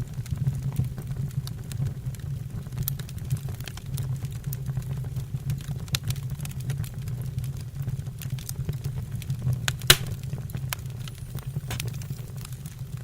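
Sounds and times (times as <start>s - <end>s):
flame rumble: 0.0s - 13.0s
wood fire crackling: 0.0s - 13.0s
loud sharp pop: 9.9s - 10.5s, 11.7s - 12.0s.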